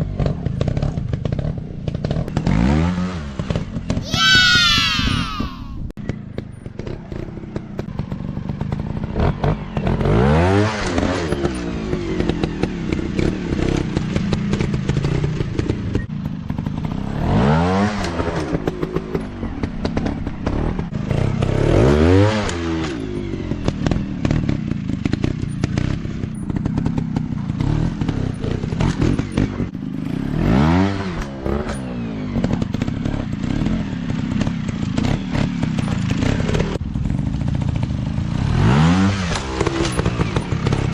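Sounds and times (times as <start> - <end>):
dirt bike engines revving: 4.0 - 5.8.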